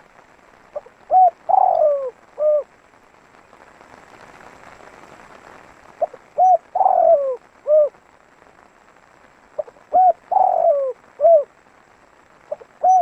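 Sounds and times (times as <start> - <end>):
dove cooing: 0.8 - 2.7, 6.0 - 8.0, 9.6 - 11.5, 12.5 - 13.0.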